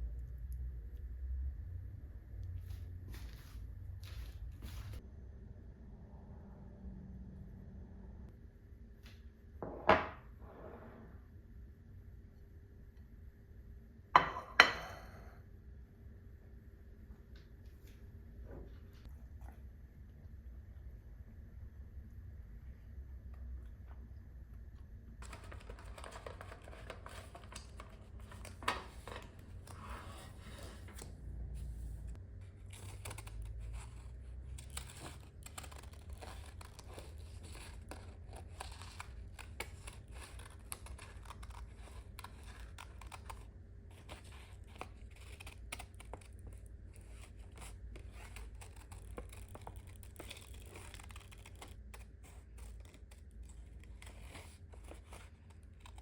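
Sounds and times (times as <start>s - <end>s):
paper rustling and tearing: 25.2s - 56.0s.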